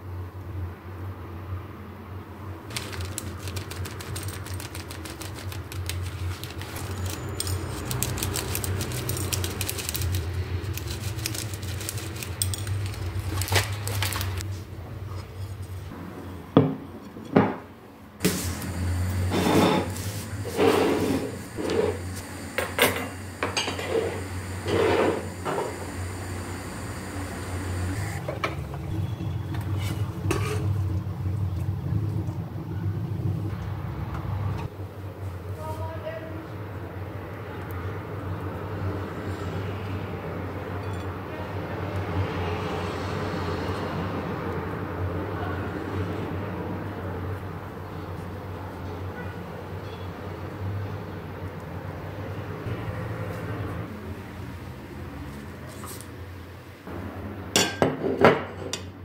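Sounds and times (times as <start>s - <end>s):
hard objects clattering: 2.7s - 14.4s.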